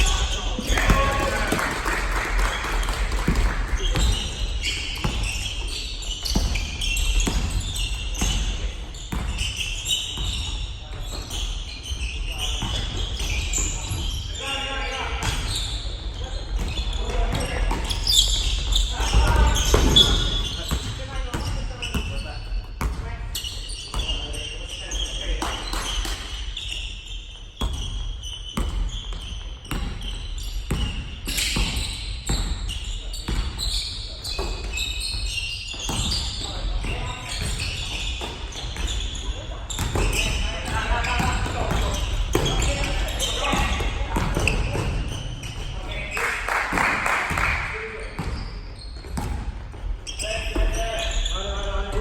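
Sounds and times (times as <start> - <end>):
basketball bouncing on gym floor: 0.0 - 14.2, 15.2 - 23.2, 27.6 - 46.1, 46.9 - 51.2
shoes squeaking on court: 0.0 - 52.0
basketball bouncing on wooden floor: 3.1 - 4.4, 5.0 - 11.3, 34.4 - 39.1, 39.7 - 45.7.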